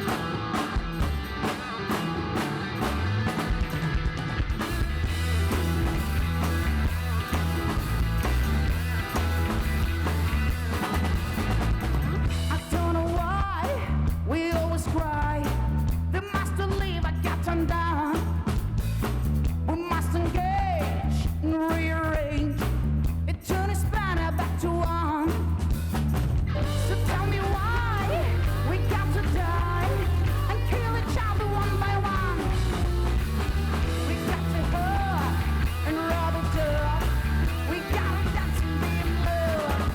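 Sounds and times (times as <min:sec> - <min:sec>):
live rock band playing: 0:00.0 - 0:21.4, 0:23.1 - 0:39.9
person singing: 0:26.6 - 0:39.9.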